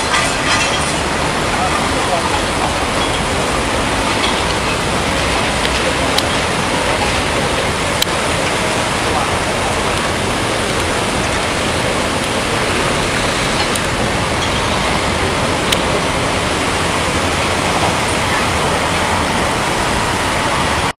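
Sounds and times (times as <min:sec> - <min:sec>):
rushing wind and rain: 0:00.0 - 0:21.0.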